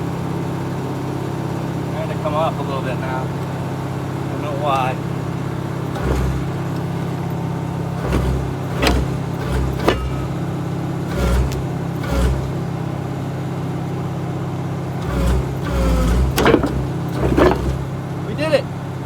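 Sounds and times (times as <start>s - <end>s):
diesel engine running: 0.0s - 19.0s
metal squeals: 5.6s - 13.0s, 14.9s - 18.4s
heavy metal clanks: 5.7s - 13.0s, 14.9s - 18.5s.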